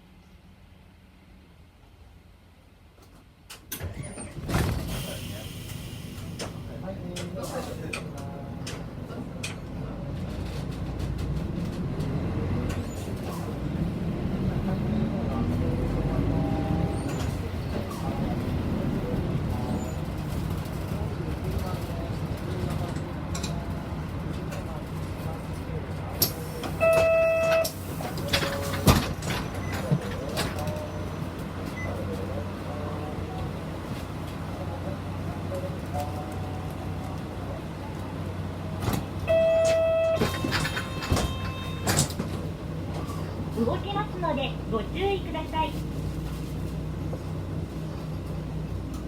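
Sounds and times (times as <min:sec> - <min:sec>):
bus engine running: 0:03.3 - 0:49.0
electronic beep: 0:26.8 - 0:27.7, 0:39.3 - 0:40.2.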